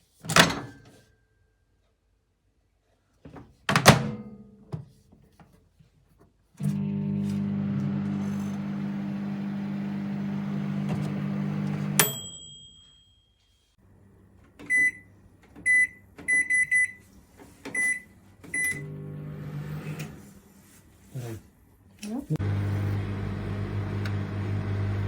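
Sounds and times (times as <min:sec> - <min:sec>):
microwave humming: 0:06.6 - 0:12.4, 0:18.5 - 0:20.2, 0:22.4 - 0:25.0
microwave click and ring: 0:06.8 - 0:13.1.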